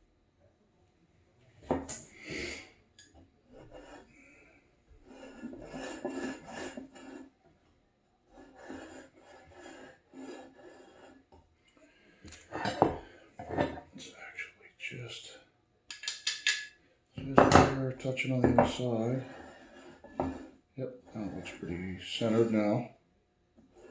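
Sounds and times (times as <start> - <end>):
hand plane rasping across wood: 5.0 - 7.3, 8.4 - 11.3, 18.5 - 21.6.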